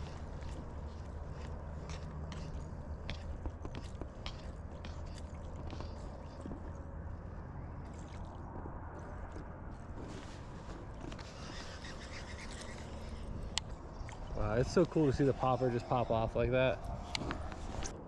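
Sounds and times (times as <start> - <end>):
squelching sloshing steps in mud: 0.0 - 7.1, 7.8 - 16.0
steady low rumble: 0.0 - 11.4.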